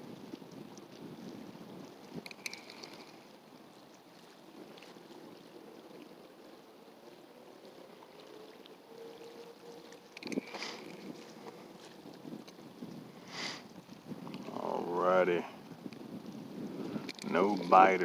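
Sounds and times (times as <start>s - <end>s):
flowing river current: 0.0s - 18.0s.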